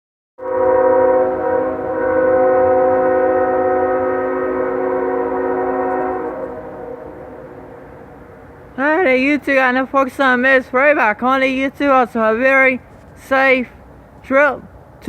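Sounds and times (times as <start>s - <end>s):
locomotive air horn blast: 0.4s - 8.1s
low rumble of train: 0.4s - 15.0s.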